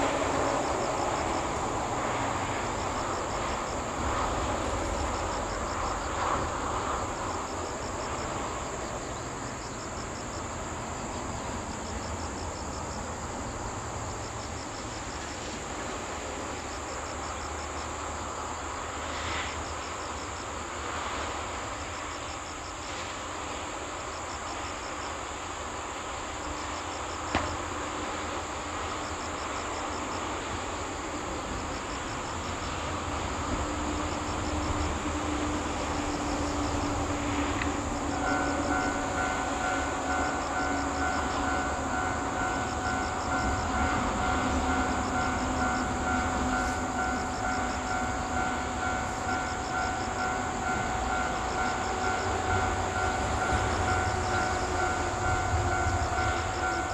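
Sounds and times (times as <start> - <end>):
insects chirping in trills: 0.0 - 56.9.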